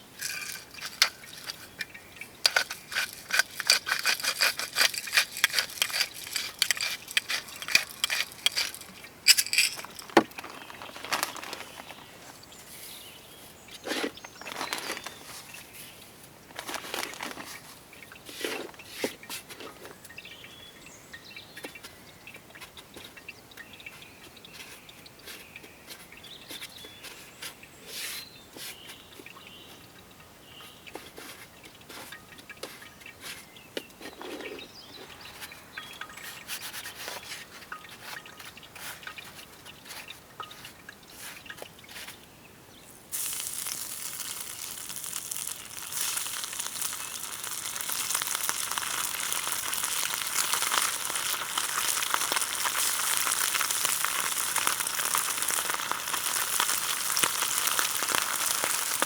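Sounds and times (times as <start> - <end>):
fish sizzling in hot oil: 43.1 - 59.0.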